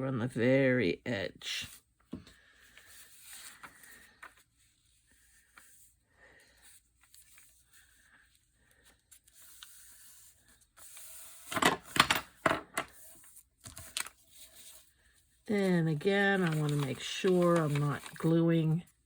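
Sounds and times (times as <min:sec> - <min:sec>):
paper rustling: 0:01.6 - 0:11.6, 0:12.9 - 0:19.0
paper scraping strokes: 0:02.5 - 0:11.5, 0:14.2 - 0:18.4.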